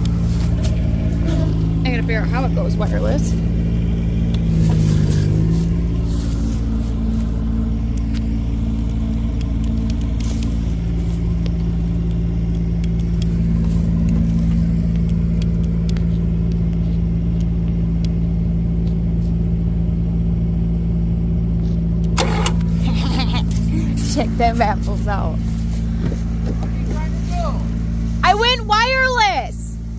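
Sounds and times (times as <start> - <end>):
vehicle engine idling: 0.0 - 29.9.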